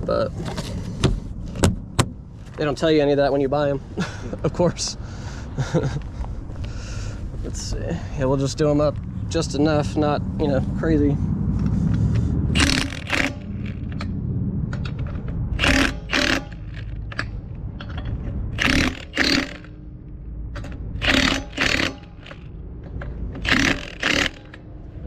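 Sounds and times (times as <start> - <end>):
impact wrench bursts: 12.6 - 14.1, 15.6 - 17.3, 18.6 - 19.8, 20.6 - 22.5, 23.4 - 24.7.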